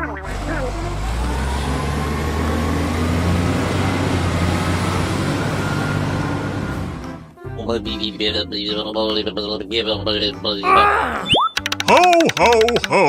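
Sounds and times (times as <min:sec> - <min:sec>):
heavy vehicle engine rumbling: 0:00.0 - 0:07.5.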